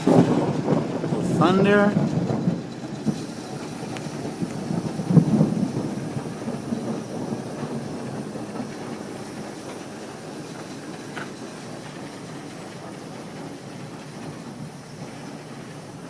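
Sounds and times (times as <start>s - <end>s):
thunder rumbling: 0.0s - 16.0s.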